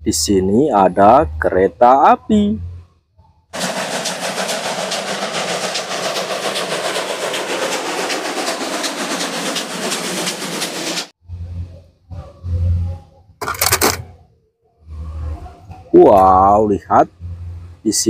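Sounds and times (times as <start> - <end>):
steam locomotive running: 3.6 - 11.7, 13.4 - 14.0.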